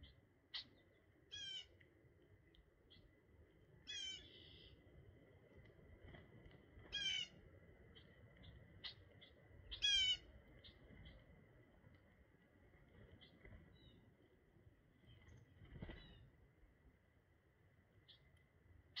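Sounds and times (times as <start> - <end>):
loud harsh bird calls: 3.9 - 4.4, 9.7 - 10.3.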